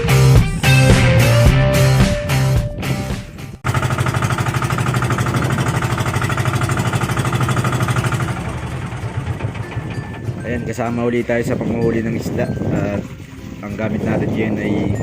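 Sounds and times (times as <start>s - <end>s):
background music: 0.0s - 3.6s, 8.7s - 15.0s
boat engine pulsing thud: 3.6s - 11.0s.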